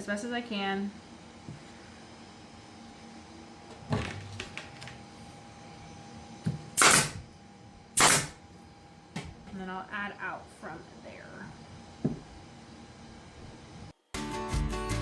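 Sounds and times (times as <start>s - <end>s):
sharp loud noise bursts: 6.8s - 7.2s, 8.0s - 8.4s.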